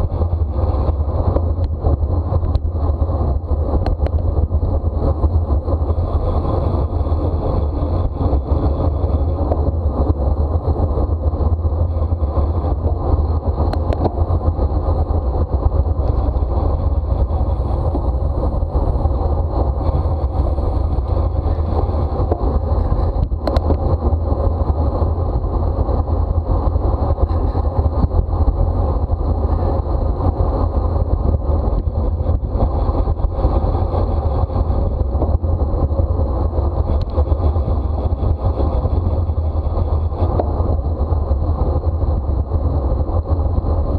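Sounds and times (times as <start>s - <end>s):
wind rushing on microphone: 0.0s - 43.9s.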